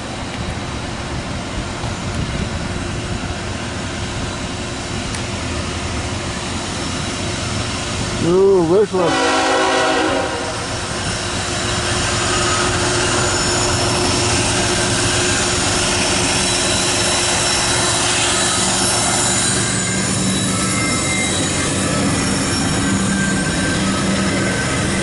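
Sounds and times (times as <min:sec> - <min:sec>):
freight train rumbling past: 0:00.0 - 0:25.0
wheels squealing: 0:10.7 - 0:25.0.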